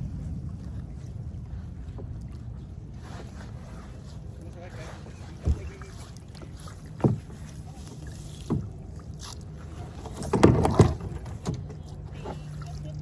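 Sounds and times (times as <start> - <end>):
hollow knocks on kayak hull: 6.9 - 7.4.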